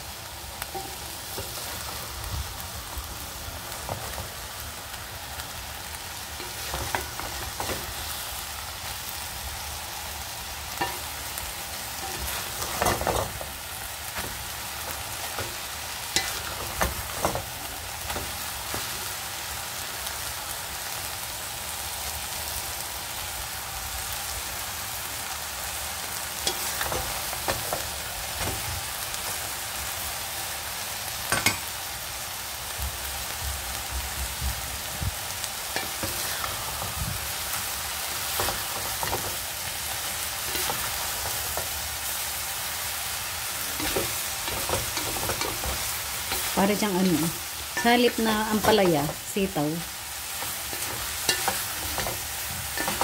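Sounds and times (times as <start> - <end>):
food sizzling in a pan: 0.0 - 53.0
wooden spatula scraping a pan: 40.4 - 41.8, 43.6 - 49.6, 50.3 - 53.0.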